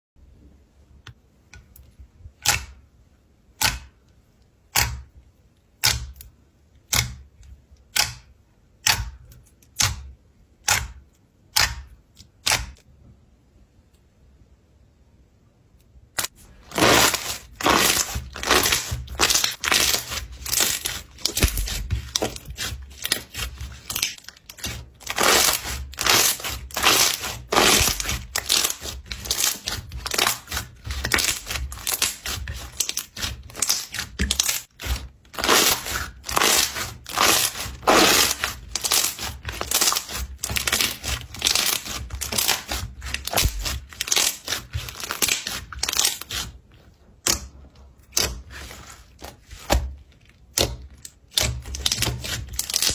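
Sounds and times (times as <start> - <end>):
slime squishing and crackling: 16.2 - 52.9.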